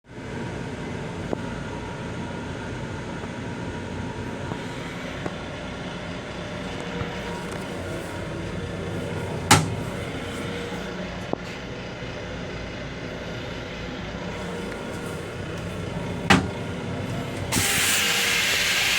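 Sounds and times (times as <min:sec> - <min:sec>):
railcar rumble and hum: 0:00.1 - 0:18.9.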